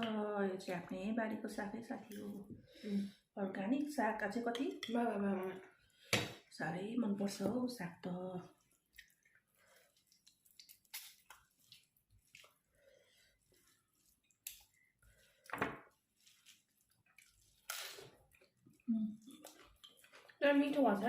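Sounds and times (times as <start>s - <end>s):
wet slurping: 8.5s - 15.5s, 16.1s - 20.4s
wet chewing and lip smacks: 8.6s - 12.7s, 13.6s - 15.0s, 16.2s - 20.4s.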